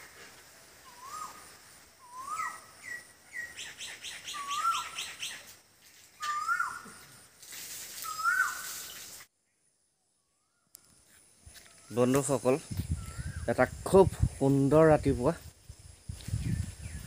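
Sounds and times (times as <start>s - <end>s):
bird rising whistle: 0.9s - 1.4s, 2.0s - 3.5s
bird fast high chirps: 2.0s - 5.5s.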